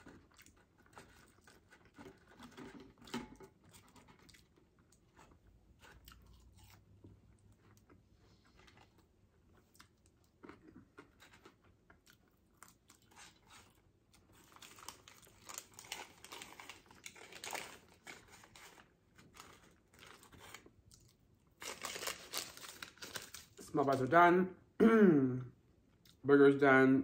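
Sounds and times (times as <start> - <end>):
chewing and crunching fries: 0.0 - 24.0, 25.9 - 26.2
paper wrappers rustling: 14.3 - 20.7, 21.6 - 24.1.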